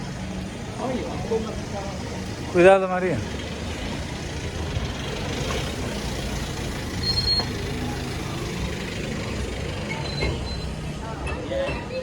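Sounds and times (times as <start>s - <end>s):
vehicle engine rumbling: 0.0s - 12.0s
brief high squeal: 7.0s - 7.6s, 9.9s - 10.8s.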